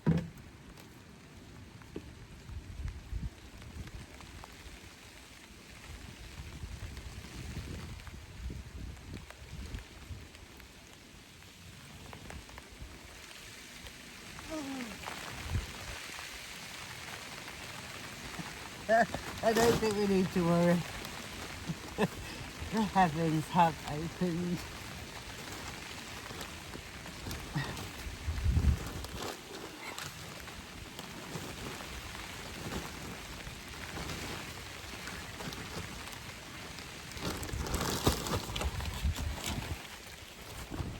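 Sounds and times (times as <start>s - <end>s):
dull thump: 0.0s - 0.4s
heavy rain falling: 1.0s - 40.9s.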